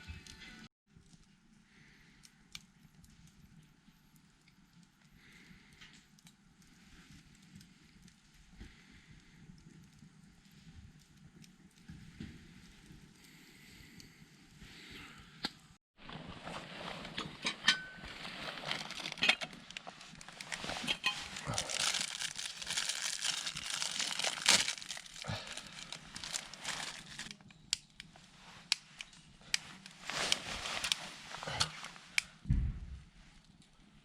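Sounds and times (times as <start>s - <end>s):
crinkling and rustling: 16.0s - 27.5s, 28.1s - 32.4s.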